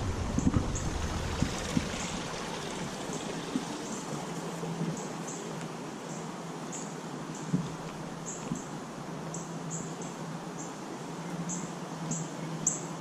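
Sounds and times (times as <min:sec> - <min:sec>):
low steady hum: 0:00.0 - 0:09.6
insects chirping: 0:00.3 - 0:10.8.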